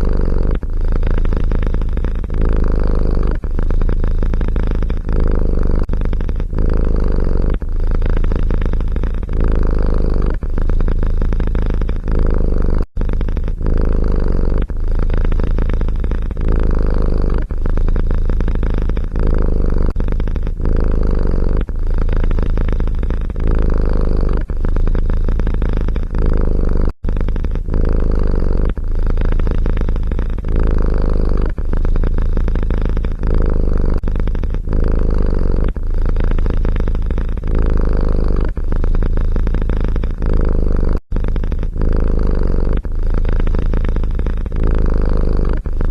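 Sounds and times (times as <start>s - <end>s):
cat purring: 0.0s - 45.9s.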